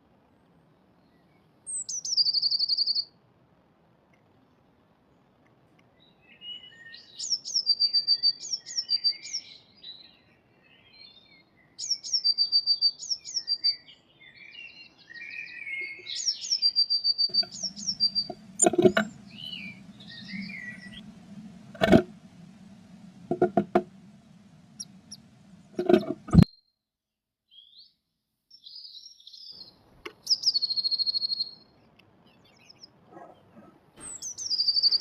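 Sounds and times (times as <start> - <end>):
blue tit singing: 1.7 - 3.0, 10.8 - 26.4, 28.6 - 31.6, 34.0 - 35.0
soft bird calls: 5.9 - 26.5, 28.6 - 35.0
low hum: 17.3 - 26.5.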